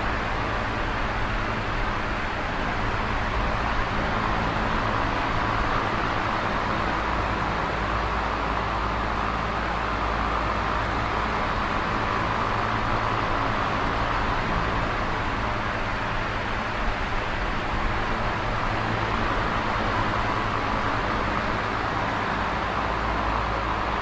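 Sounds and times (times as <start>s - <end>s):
electric fan running: 0.0s - 24.0s.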